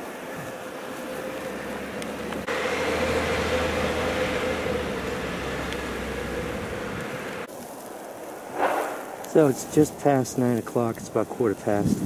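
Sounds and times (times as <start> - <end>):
truck engine droning: 0.0 - 7.5.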